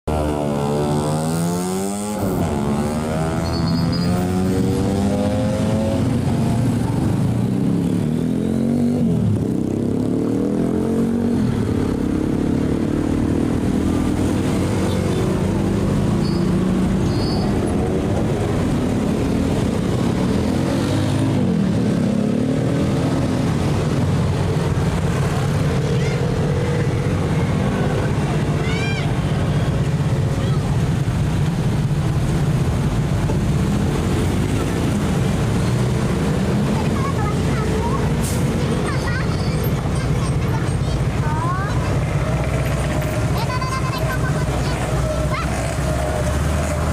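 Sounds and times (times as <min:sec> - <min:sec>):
diesel truck engines passing: 0:00.1 - 0:46.9
short high squeaks: 0:03.4 - 0:04.2, 0:16.2 - 0:17.6.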